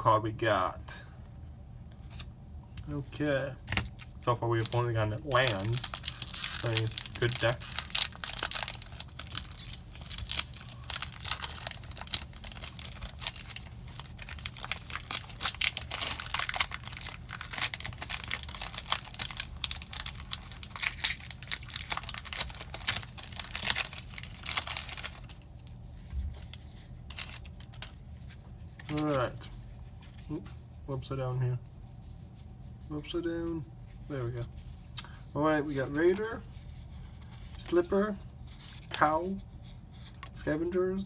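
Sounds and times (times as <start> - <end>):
plastic foil wrapper crinkling: 3.8 - 29.3.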